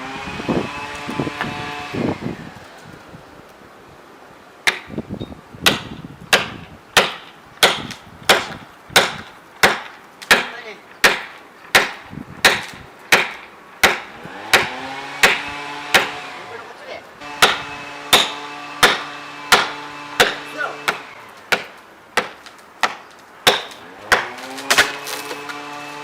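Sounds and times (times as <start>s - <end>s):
heavy tool blows on wood: 11.8s - 16.5s.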